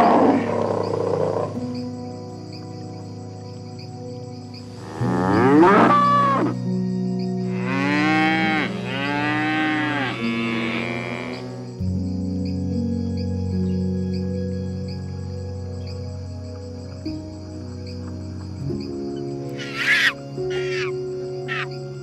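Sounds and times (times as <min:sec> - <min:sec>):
soft background music: 0:00.0 - 0:22.0
cow mooing: 0:04.8 - 0:06.5, 0:07.5 - 0:11.7.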